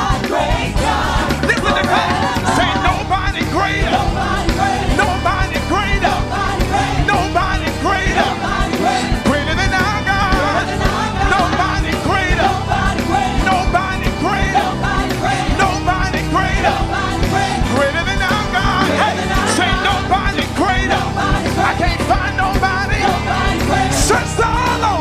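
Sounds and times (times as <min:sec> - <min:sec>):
live band playing: 0:00.0 - 0:25.0
steady drum beat: 0:00.0 - 0:25.0
voices singing: 0:00.0 - 0:25.0.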